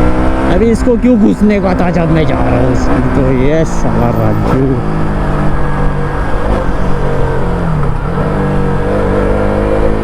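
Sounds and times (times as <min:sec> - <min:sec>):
motorcycle engine under throttle: 0:03.9 - 0:10.0.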